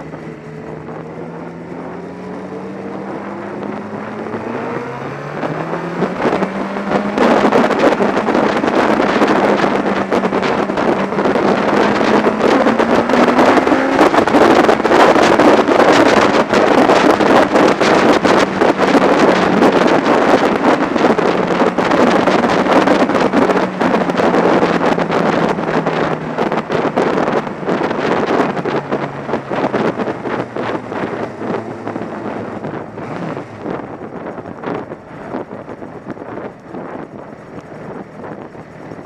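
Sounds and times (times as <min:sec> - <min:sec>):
motorcycle engine: 0:00.0 - 0:39.0
wind buffeting microphone: 0:00.0 - 0:39.0.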